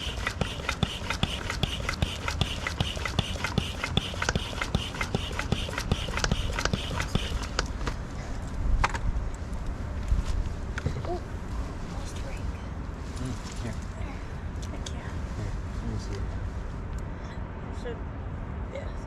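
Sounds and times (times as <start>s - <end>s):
hands scrubbing wet soapy fur: 0.0s - 7.7s.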